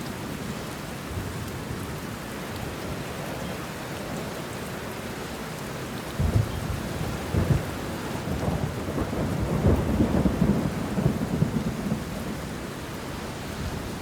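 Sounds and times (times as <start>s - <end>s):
rain on leaves: 0.0s - 14.0s
thunder rumbling: 6.2s - 14.0s.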